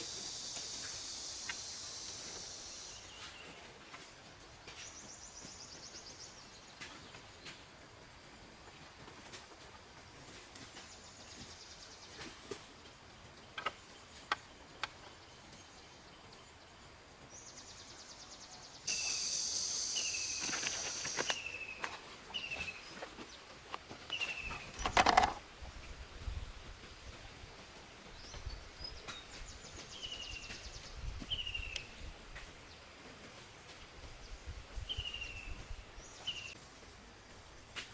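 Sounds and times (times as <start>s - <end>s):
insect pulsing buzz: 0.0s - 3.4s, 18.9s - 21.6s
bird falling call: 18.9s - 22.6s.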